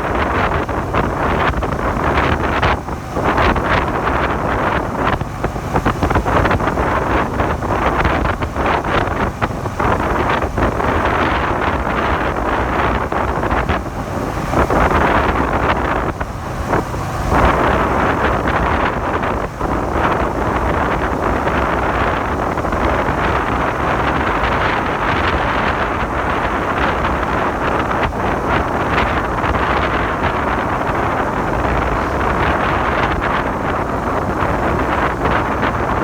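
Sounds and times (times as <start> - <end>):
motorcycle engine running: 0.0 - 36.0
wind buffeting microphone: 0.0 - 36.0.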